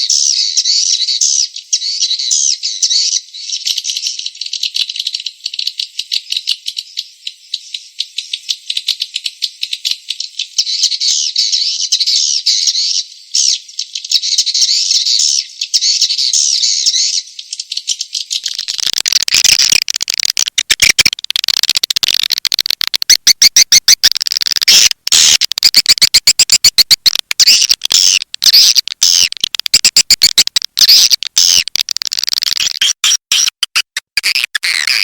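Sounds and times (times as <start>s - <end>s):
swiftlets twittering and clicking: 18.3s - 35.0s.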